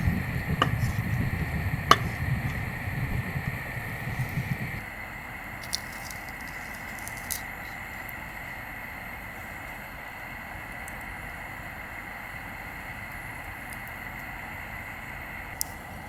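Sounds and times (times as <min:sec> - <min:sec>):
sharp pops: 0:00.0 - 0:04.8.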